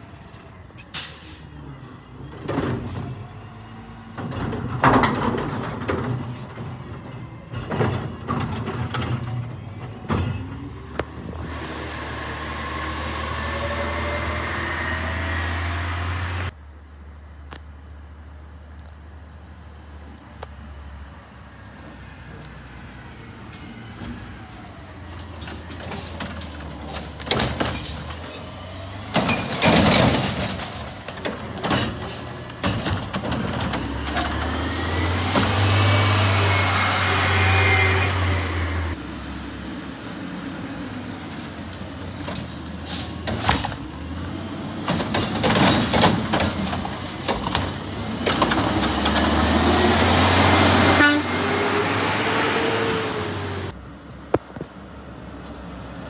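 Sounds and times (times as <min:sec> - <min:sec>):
truck engine revving: 0:10.6 - 0:16.6, 0:24.3 - 0:39.1, 0:40.8 - 0:53.8
carts and lids clattering: 0:25.2 - 0:34.6, 0:44.8 - 0:49.6.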